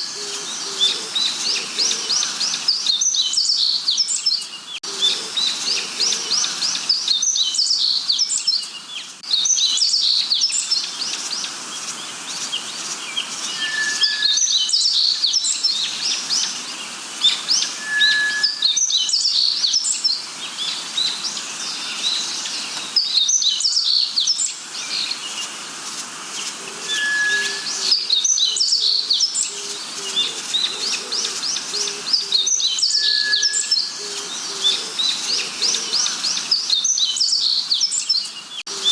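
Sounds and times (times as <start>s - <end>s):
forest birds chirping and trilling: 0.0s - 38.9s
low repeated bird notes: 13.2s - 16.6s, 17.3s - 21.2s, 26.7s - 37.8s
clear whistle: 13.6s - 14.5s, 17.8s - 18.8s, 26.9s - 27.9s.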